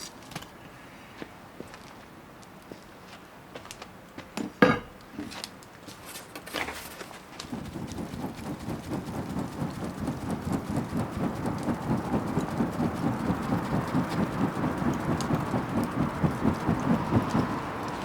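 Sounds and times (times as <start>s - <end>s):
bonfire crackling: 7.1s - 18.0s
low pulsing rumble: 7.5s - 18.0s.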